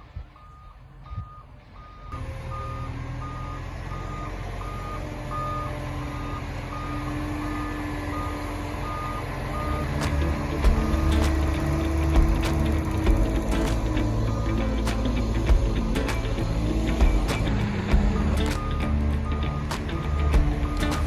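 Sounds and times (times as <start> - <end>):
truck engine running: 0.0 - 21.0
reversing alarm beeps: 0.3 - 11.6, 13.5 - 14.8, 18.0 - 21.0.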